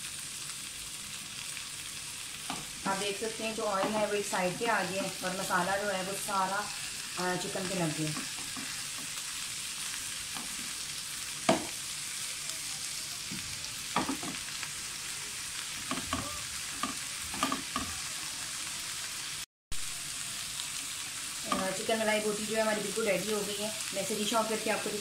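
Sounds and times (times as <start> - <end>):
chicken sizzling in oil: 0.0 - 25.0
skewers knocking against pan: 11.4 - 11.7, 14.0 - 14.4, 15.8 - 17.9.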